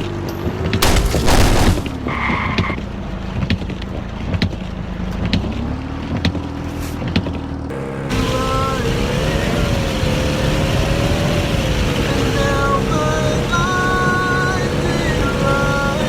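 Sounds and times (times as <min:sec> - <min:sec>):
vehicle engine running: 0:00.0 - 0:16.0
loud car crash impact: 0:00.8 - 0:02.2.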